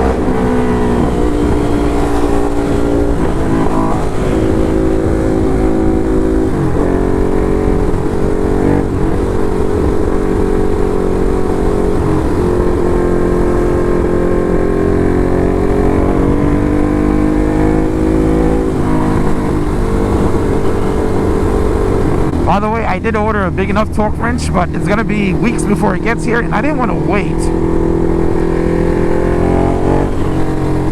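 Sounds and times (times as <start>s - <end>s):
motorcycle engine running: 0.0s - 30.9s.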